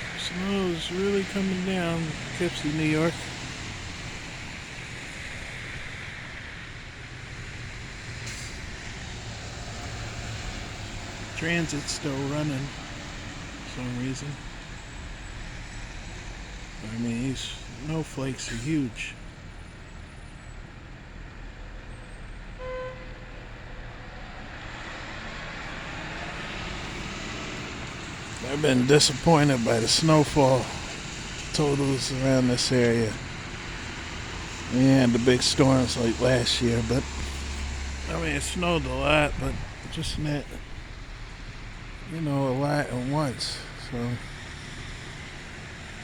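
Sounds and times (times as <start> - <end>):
low engine rumble: 0.0 - 46.0.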